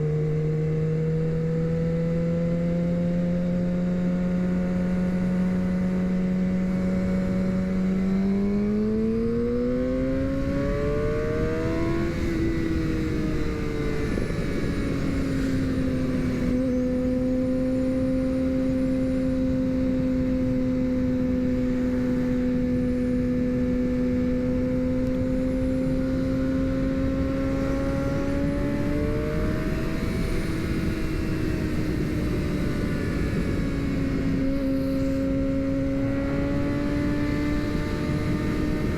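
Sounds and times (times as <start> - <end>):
motorcycle engine running: 0.0 - 38.9
wind rush: 10.2 - 38.9.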